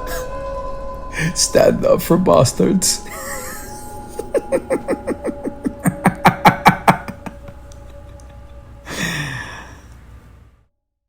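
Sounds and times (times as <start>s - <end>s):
man laughing: 3.0s - 9.7s
breathy sigh: 8.8s - 10.3s.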